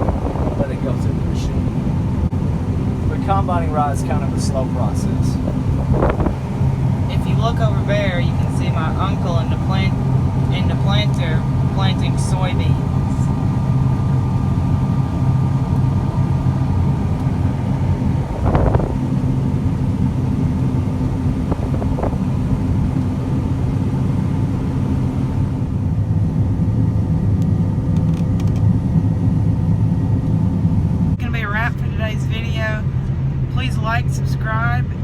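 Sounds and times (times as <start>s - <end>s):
combine harvester drone: 0.0s - 35.0s
faint steady whine: 0.0s - 35.0s.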